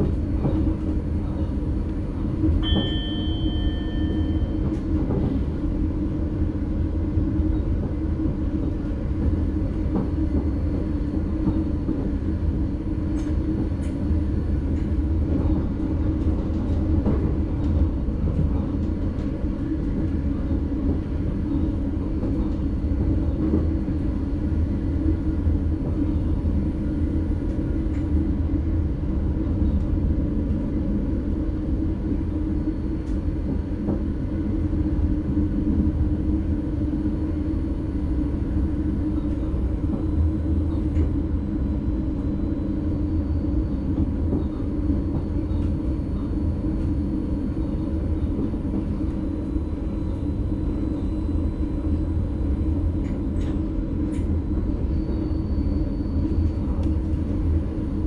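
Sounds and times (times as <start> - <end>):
train wheels and drive rumbling: 0.0 - 58.0.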